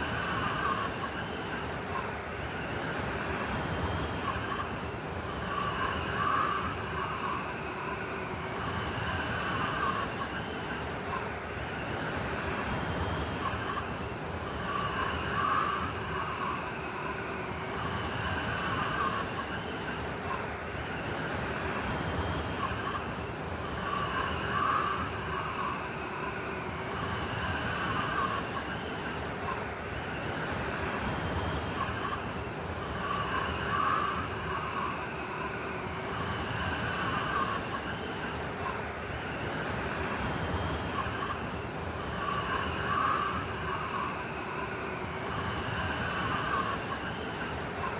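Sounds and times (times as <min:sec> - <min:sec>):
blizzard wind howling: 0:00.0 - 0:47.9.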